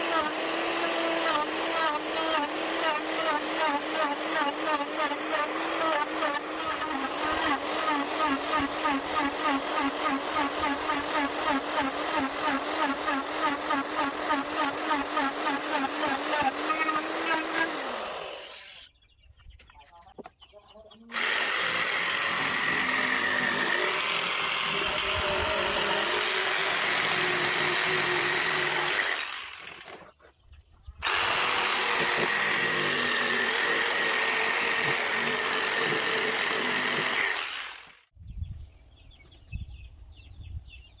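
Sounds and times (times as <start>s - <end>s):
electric power tool whining: 0.0s - 18.9s, 21.1s - 30.1s, 31.0s - 38.0s.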